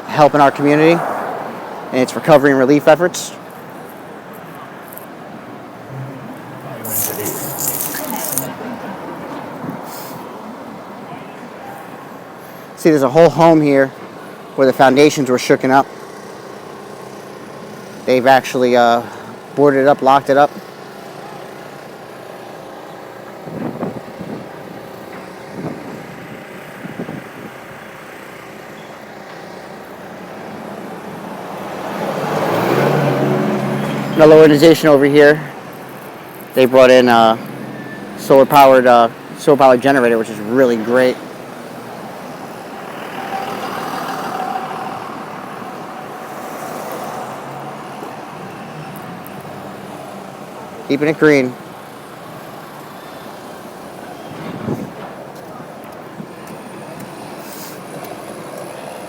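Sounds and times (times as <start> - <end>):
vehicle approaching: 0.0 - 12.6, 28.3 - 38.2, 38.8 - 59.0
drone of road vehicles: 0.0 - 59.0.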